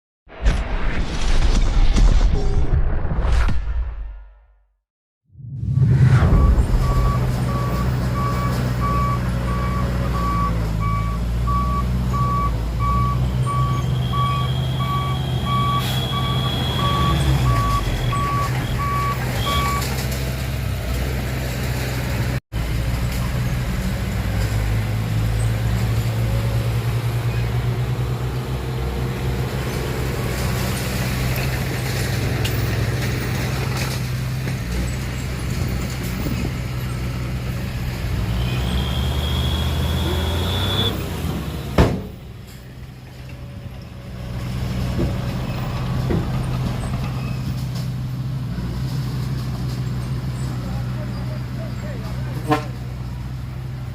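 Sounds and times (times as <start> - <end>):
high squeal: 5.7 - 8.6, 38.3 - 41.1
reversing alarm beeping: 6.0 - 19.9
dump truck diesel engine running: 6.4 - 53.9.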